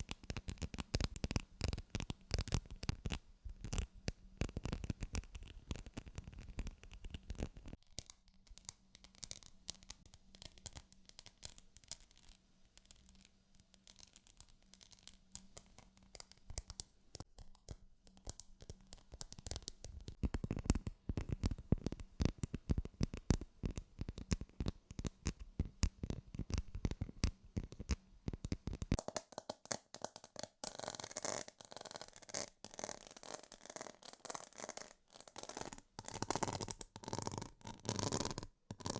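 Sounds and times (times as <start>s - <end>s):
fingers scratching and tapping objects: 13.8s - 38.9s.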